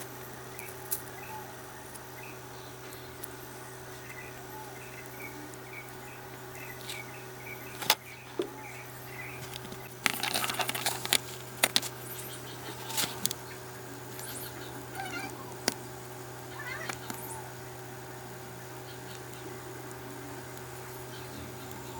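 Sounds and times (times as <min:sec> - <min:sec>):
metal parts clinking and rattling: 0:09.4 - 0:11.9.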